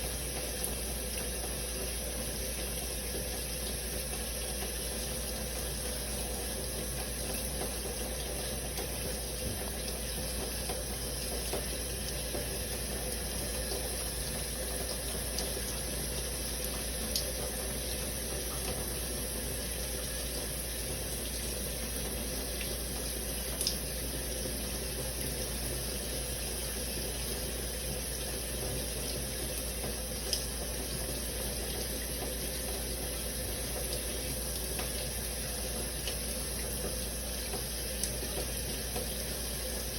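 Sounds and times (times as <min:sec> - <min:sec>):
shower spray running: 0:00.0 - 0:39.9.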